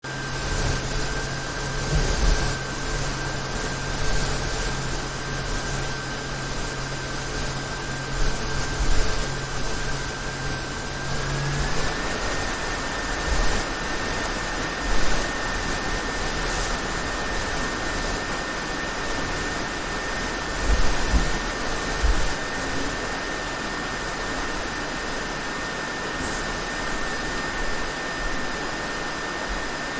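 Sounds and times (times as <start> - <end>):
high-pitched fan whine: 0.0 - 29.9
laptop fans whirring: 0.0 - 29.9
low hum: 0.1 - 29.8.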